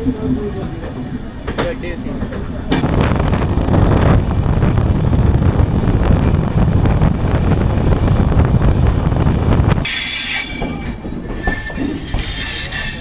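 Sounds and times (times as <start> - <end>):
train wheels rumbling on rails: 0.0 - 13.0
high wheel squeals: 9.9 - 13.0.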